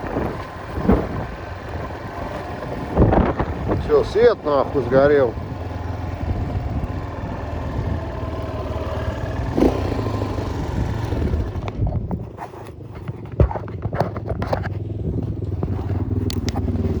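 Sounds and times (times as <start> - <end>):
motorcycle engine running: 0.0 - 17.0
sharp knocks and clatters: 11.6 - 16.7.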